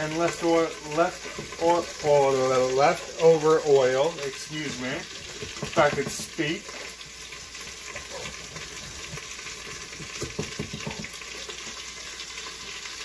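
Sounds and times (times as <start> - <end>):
food sizzling in oil: 0.0 - 13.0
wooden spoon scraping pot: 0.1 - 11.2
spoon knocks: 10.0 - 11.1.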